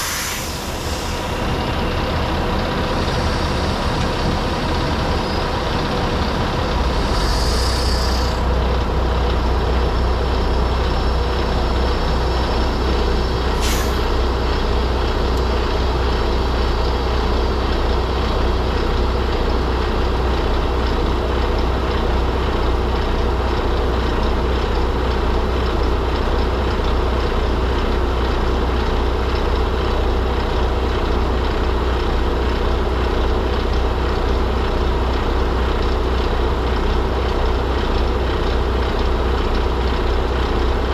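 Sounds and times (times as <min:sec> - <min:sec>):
air hiss: 0:00.0 - 0:01.6, 0:07.0 - 0:08.5, 0:13.5 - 0:14.2
road noise: 0:00.0 - 0:20.2
diesel truck engine drone: 0:00.0 - 0:40.9.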